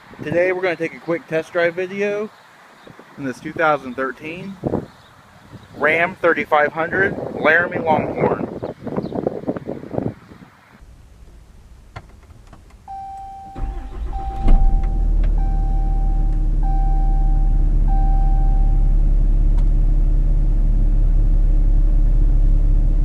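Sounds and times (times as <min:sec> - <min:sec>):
diesel engine cranking and idling: 0:10.8 - 0:23.0
dashboard warning chimes: 0:12.9 - 0:18.9.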